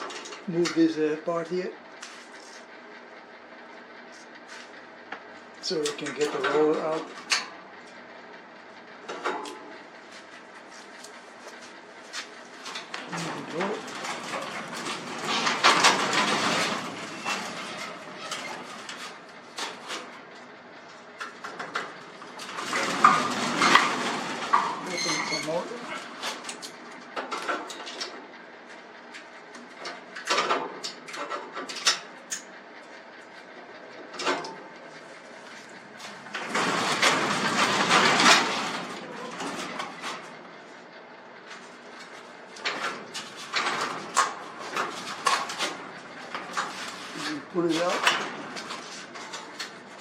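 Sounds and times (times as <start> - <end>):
garage door rattling and clanking: 0.0 - 1.7, 5.6 - 7.9, 9.0 - 10.1, 12.1 - 32.5, 33.9 - 50.0.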